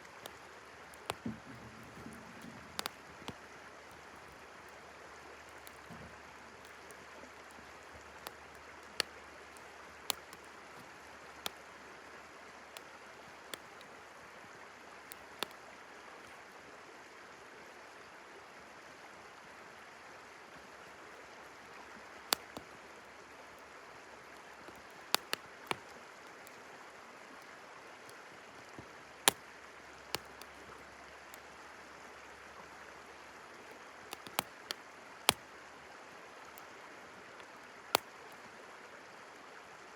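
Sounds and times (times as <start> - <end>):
fire popping: 0.0 - 11.6, 22.2 - 22.7, 24.4 - 25.8, 34.1 - 35.4
wood fire crackling: 0.0 - 14.1, 15.0 - 15.6, 22.2 - 22.8, 24.3 - 26.5, 28.8 - 31.5, 34.0 - 35.5
river flowing: 0.0 - 39.9.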